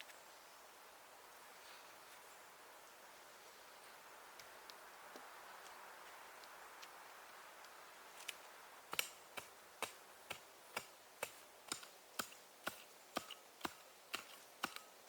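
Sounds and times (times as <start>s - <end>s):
sharp crisp knocks: 8.9s - 14.9s.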